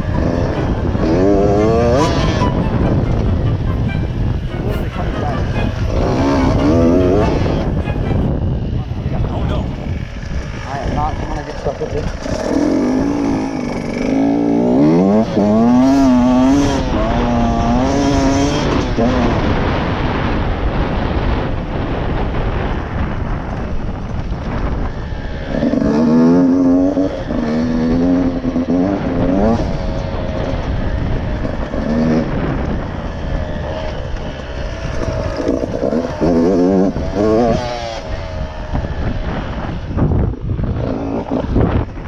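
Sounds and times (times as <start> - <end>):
rushing noise: 0.0 - 11.5
two-stroke dirt bike engine revving: 0.0 - 42.0.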